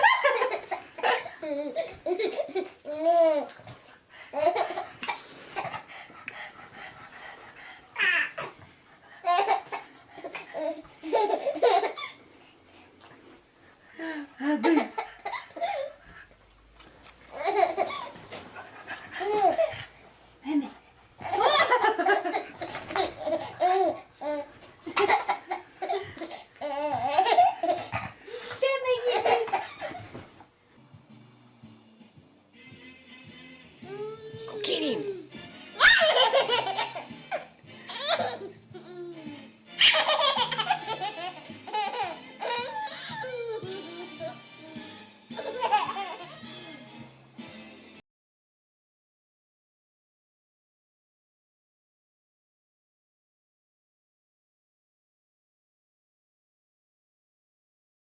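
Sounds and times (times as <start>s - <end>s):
baby laughing and babbling: 0.0s - 3.8s, 4.4s - 5.9s, 8.0s - 8.6s, 9.2s - 12.2s, 14.4s - 16.0s, 17.3s - 18.2s, 18.8s - 19.9s, 21.2s - 30.1s, 33.8s - 46.8s.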